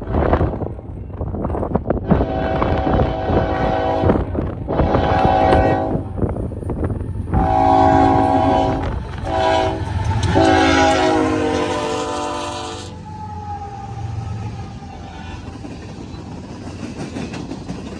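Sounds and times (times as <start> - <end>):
low rumble of moving train: 0.0 - 17.9
locomotive air horn: 2.1 - 6.1, 7.4 - 13.5.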